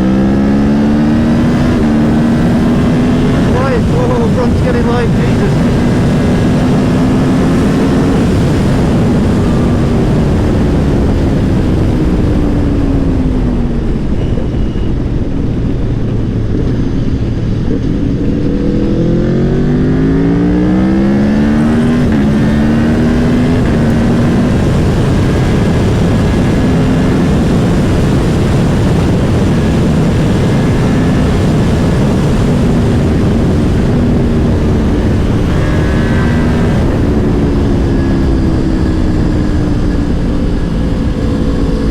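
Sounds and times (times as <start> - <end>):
motorcycle engine accelerating: 0.0 - 41.9
wind rush: 0.0 - 41.9.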